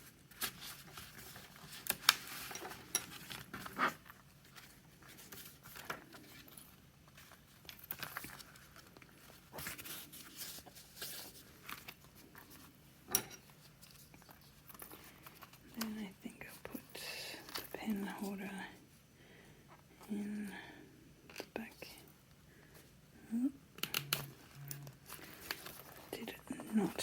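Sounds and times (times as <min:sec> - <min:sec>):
notebook handling clicks and rustles: 0:00.0 - 0:16.0, 0:23.8 - 0:27.0.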